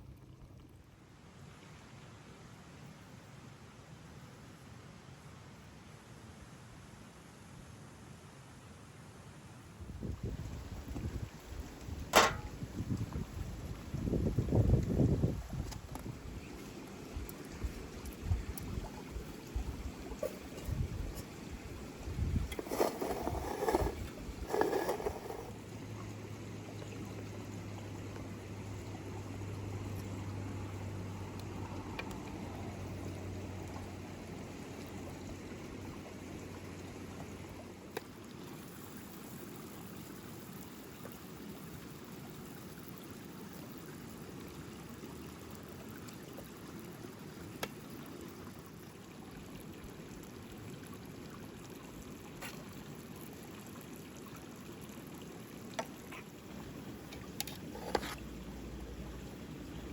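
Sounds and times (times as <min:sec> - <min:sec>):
rushing water noise: 0:10.2 - 0:39.5, 0:44.1 - 0:59.9.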